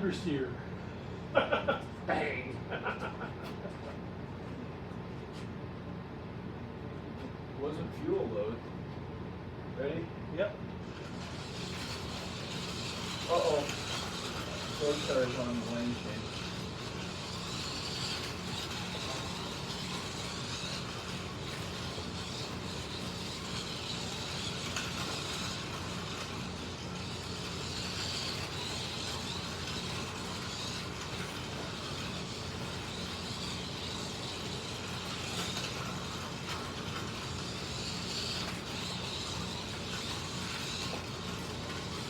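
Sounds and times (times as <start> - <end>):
slot car motors whining: 10.7 - 42.0
steady rumble: 10.8 - 42.0.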